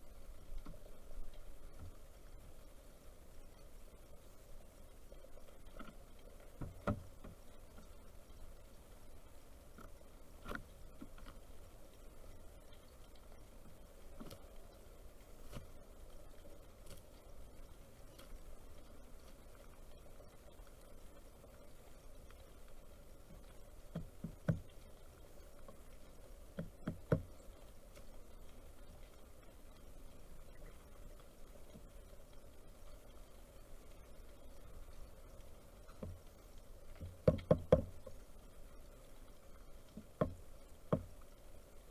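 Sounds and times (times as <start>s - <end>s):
knocks and taps at bird feeder: 26.6s - 27.3s, 37.2s - 37.9s
woodpecker knocking: 37.2s - 37.9s.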